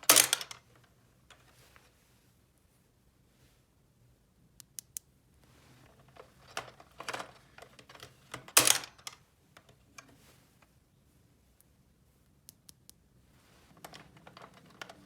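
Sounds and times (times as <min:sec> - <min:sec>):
plastic toy pieces clattering: 0:00.0 - 0:00.6, 0:06.1 - 0:09.2.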